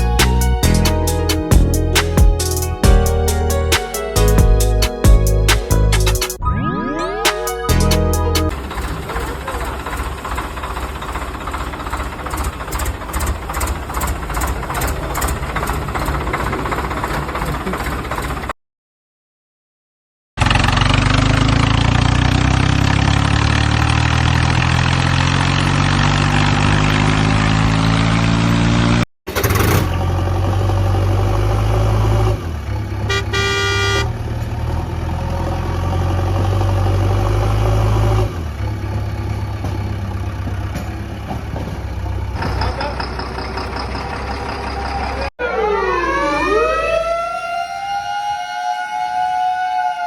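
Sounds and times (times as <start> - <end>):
truck engine revving: 20.4 - 40.8
horn honk: 33.1 - 34.2.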